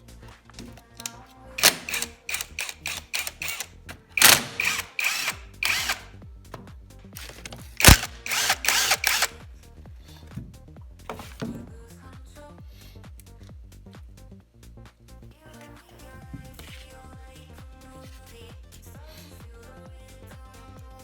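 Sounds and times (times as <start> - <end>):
quiet background music: 0.0 - 21.0
tool bursts on engine: 1.6 - 6.1, 7.8 - 9.3.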